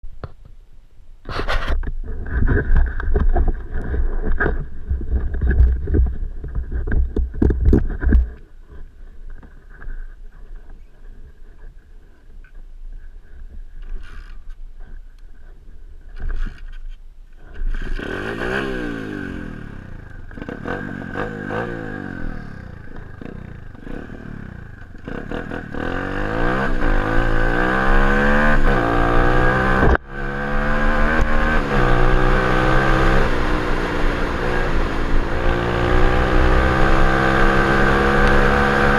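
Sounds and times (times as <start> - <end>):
motorbike engine revving: 17.6 - 38.9.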